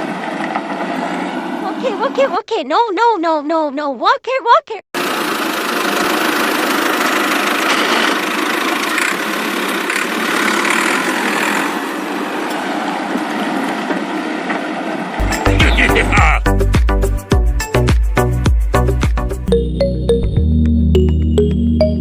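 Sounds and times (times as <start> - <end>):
small engine running: 5.0 - 13.8
music with heavy beat: 15.2 - 19.5.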